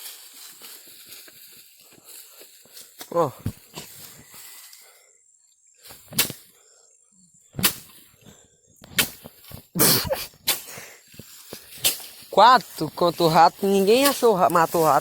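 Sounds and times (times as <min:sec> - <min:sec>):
sticks whacking dry brush: 0:08.8 - 0:15.0.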